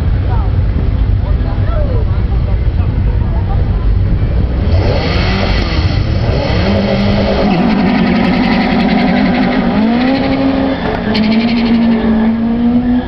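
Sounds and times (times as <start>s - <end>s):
car engine accelerating hard: 4.2s - 13.0s.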